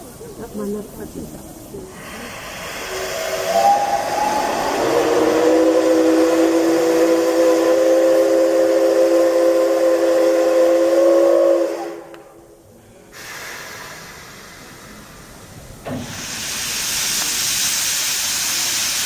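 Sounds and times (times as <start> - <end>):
steam hissing: 0.0 - 19.0
steam whistle blast: 2.7 - 12.3.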